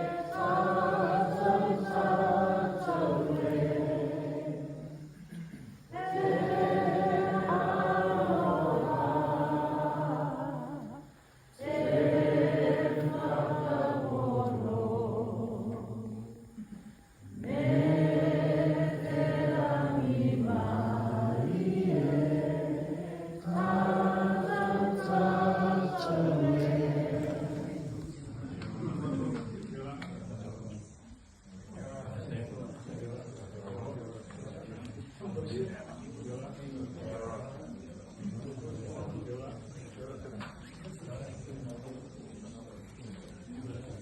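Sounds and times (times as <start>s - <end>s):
group singing unaccompanied: 0.0s - 28.9s.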